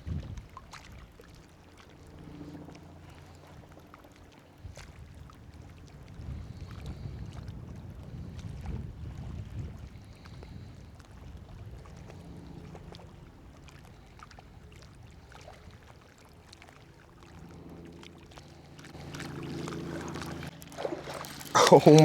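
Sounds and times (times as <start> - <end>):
wind rumble on microphone: 0.0 - 1.4, 4.6 - 15.8.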